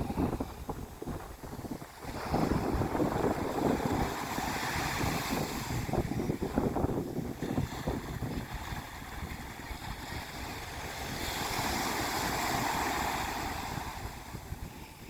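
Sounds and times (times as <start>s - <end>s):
rushing water: 0.0s - 15.0s
wind buffeting microphone: 0.0s - 15.0s.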